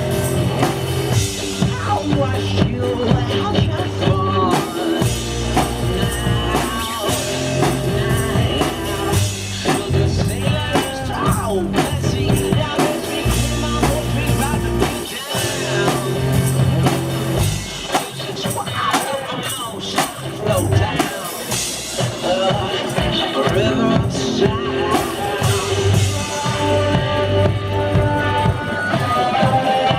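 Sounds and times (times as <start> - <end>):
bass line: 0.0 - 29.9
steady drum beat: 0.0 - 29.9
tambourine: 0.0 - 29.9.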